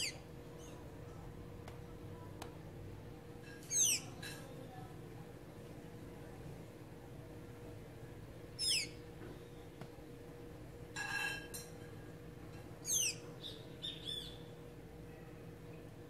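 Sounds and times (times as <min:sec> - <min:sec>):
bird calling high squeaky notes: 0:00.0 - 0:00.7, 0:03.6 - 0:04.1, 0:08.6 - 0:09.0, 0:12.8 - 0:14.4.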